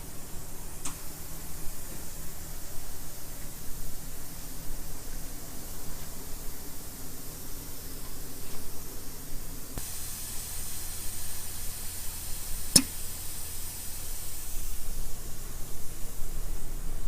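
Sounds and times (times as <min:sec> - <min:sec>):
spray gun air hiss: 0:00.0 - 0:17.0
sharp click: 0:12.8 - 0:13.0.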